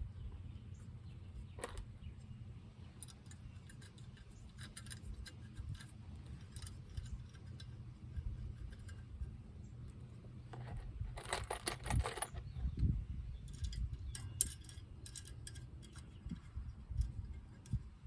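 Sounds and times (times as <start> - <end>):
low steady rumble: 0.0 - 18.0
small metal clicks and clinks: 2.9 - 9.2, 13.4 - 18.0.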